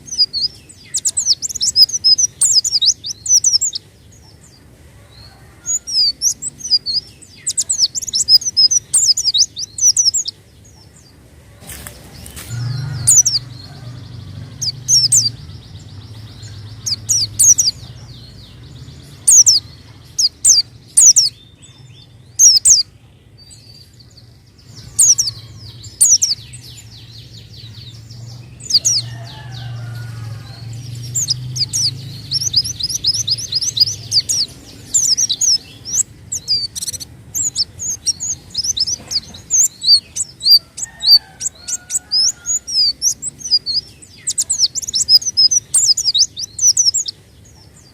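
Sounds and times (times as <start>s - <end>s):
bird chirping and whistling: 0.0s - 3.8s, 5.9s - 10.3s, 12.5s - 13.6s, 16.8s - 17.8s, 22.4s - 22.8s, 24.9s - 25.4s, 31.1s - 47.1s.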